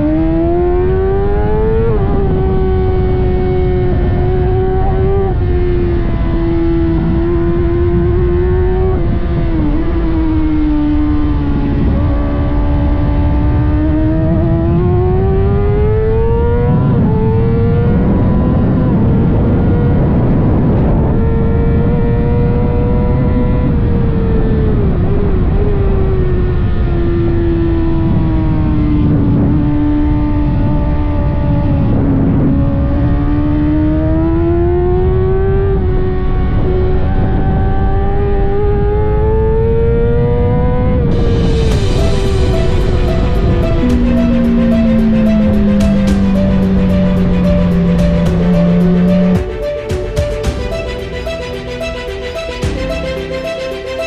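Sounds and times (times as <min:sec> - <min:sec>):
motorcycle engine revving hard: 0:00.0 - 0:20.2
steady rushing noise: 0:41.1 - 0:54.0.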